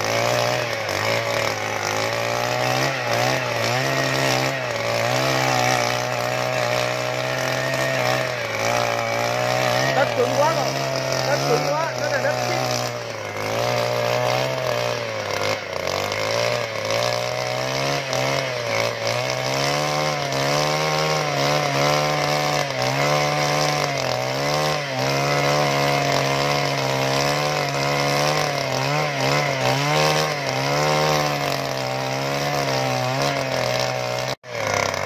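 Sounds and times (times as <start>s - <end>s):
petrol earth auger engine: 0.0s - 35.0s.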